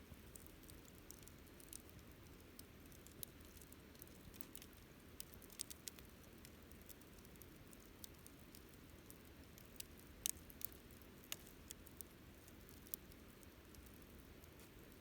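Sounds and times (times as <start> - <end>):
low rumble of burning fire: 0.0 - 15.0
campfire pops and snaps: 9.5 - 11.8.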